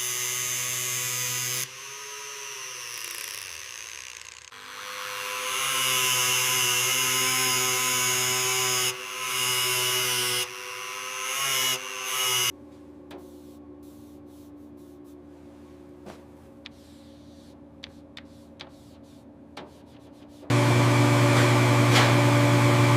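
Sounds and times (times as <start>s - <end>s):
power tool running: 0.0s - 12.5s, 20.5s - 22.9s.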